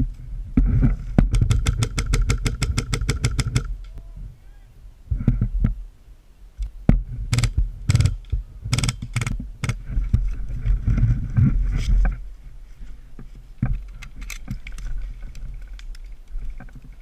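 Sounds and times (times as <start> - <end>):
low rumbling noise: 0.0 - 17.0
sharp knocks and thumps: 0.6 - 3.8.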